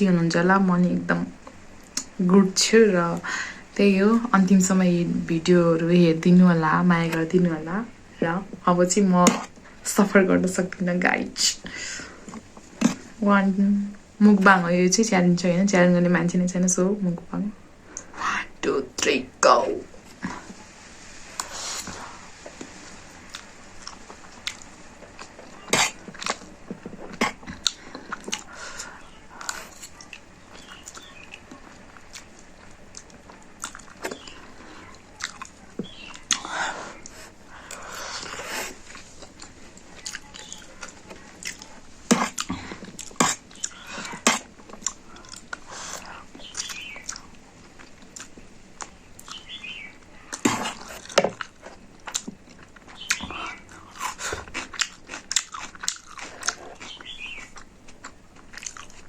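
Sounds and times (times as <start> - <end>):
person chewing noodles: 20.0 - 59.0.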